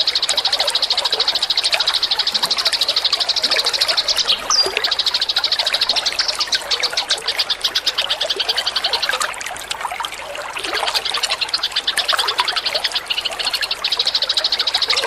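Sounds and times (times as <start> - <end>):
songbird rattling trill: 0.0 - 9.1
water trickling: 0.0 - 15.0.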